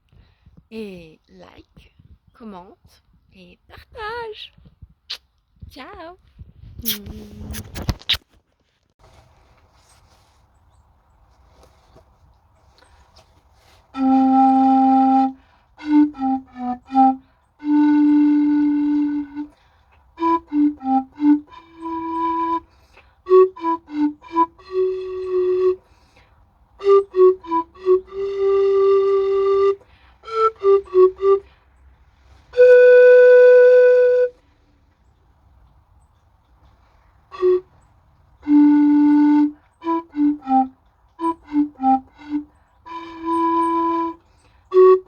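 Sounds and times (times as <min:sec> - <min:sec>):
pan flute tune: 0:13.6 - 0:19.6, 0:20.2 - 0:25.9, 0:26.8 - 0:31.5, 0:32.4 - 0:34.5, 0:37.3 - 0:37.8, 0:38.4 - 0:45.0.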